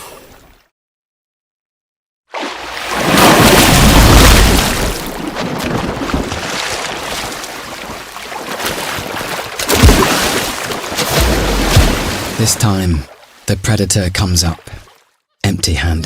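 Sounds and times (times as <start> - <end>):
heavy water splashing: 2.3 - 15.1.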